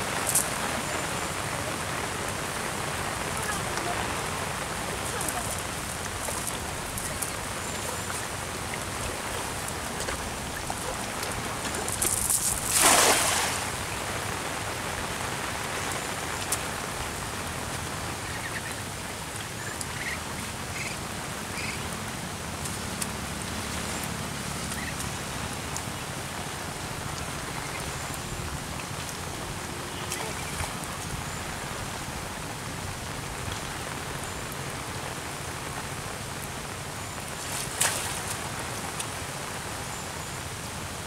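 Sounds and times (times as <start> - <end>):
rain pattering on pond: 0.0 - 41.0
cast net splashing into water: 12.0 - 13.8.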